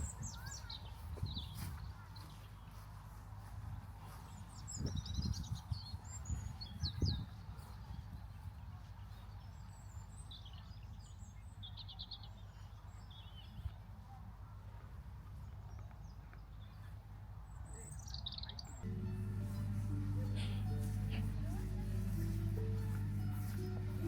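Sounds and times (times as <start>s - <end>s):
songbirds chirping: 0.0s - 24.0s
steady low rumble: 18.8s - 24.0s.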